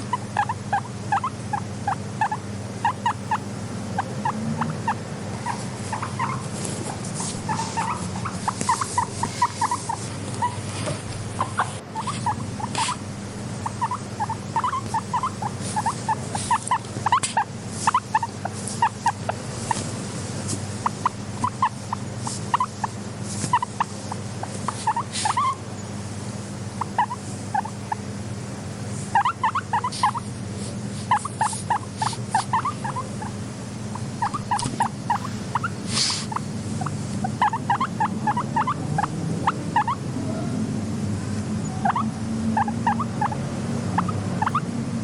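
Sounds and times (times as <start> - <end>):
guinea pig squeaking: 0.0 - 40.0, 41.6 - 44.7
steady low hum: 0.0 - 45.0.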